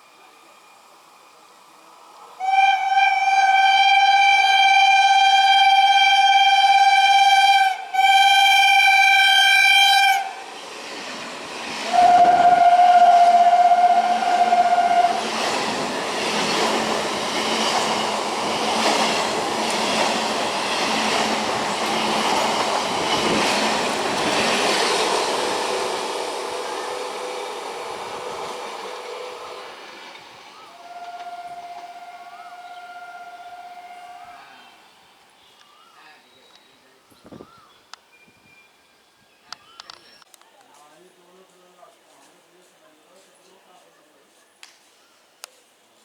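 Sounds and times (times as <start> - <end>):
train passing with wheel clatter: 1.0 - 34.9
train horn blasts: 2.4 - 10.4, 11.9 - 15.4, 30.7 - 34.7.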